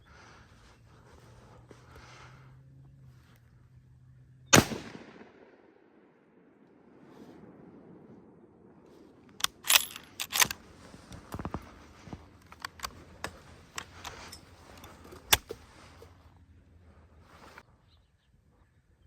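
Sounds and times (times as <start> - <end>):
rifle metallic clicks and clacks: 9.3 - 10.6, 12.4 - 15.6.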